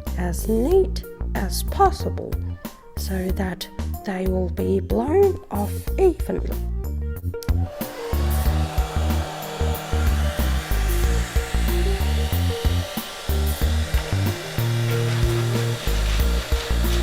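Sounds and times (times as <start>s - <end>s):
hair dryer blowing: 7.5s - 17.0s.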